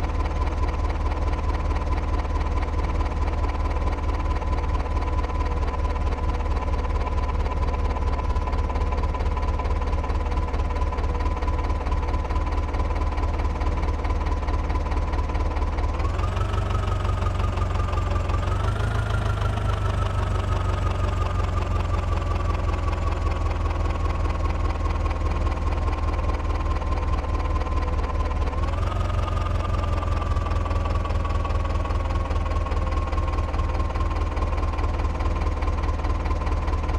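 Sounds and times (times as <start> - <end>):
diesel tractor engine revving: 16.0 - 25.1, 28.5 - 34.4.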